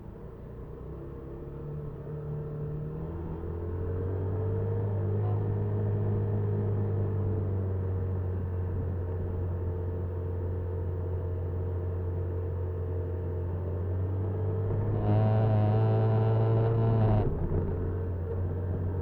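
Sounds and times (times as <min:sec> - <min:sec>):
small motorcycle engine running: 0:14.7 - 0:18.3.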